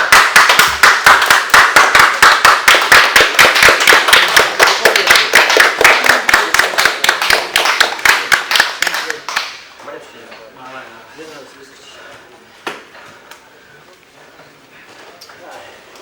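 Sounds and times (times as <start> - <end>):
people clapping: 0.0 - 9.9.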